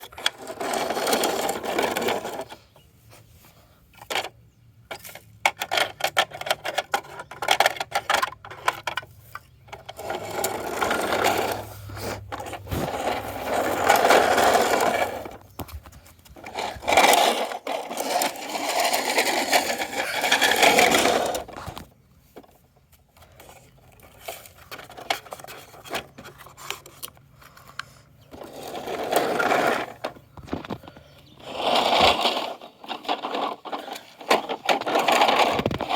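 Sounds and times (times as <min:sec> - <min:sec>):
plastic clicks and rattles: 0:04.0 - 0:11.2.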